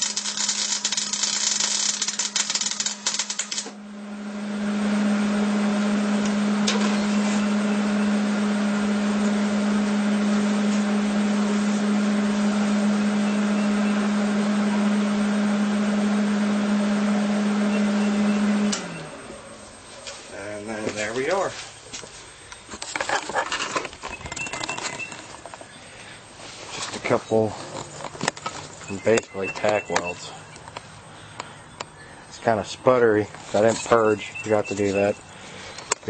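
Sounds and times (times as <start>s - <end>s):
welding arc crackling: 0.0s - 3.8s
loud machine hum: 0.0s - 21.5s.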